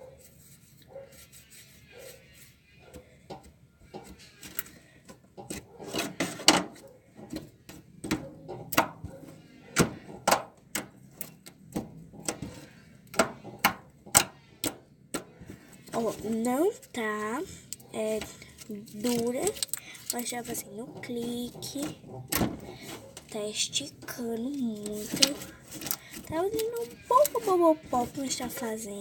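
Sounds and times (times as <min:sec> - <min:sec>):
soft rubbing of slime: 0:00.0 - 0:03.2, 0:15.3 - 0:22.0, 0:22.6 - 0:29.0.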